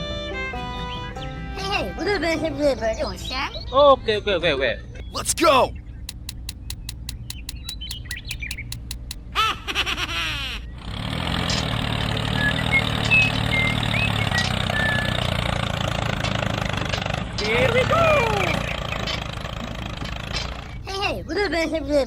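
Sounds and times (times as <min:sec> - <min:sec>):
bird chirps: 0:05.0 - 0:09.2
rapid clicking: 0:06.1 - 0:09.2.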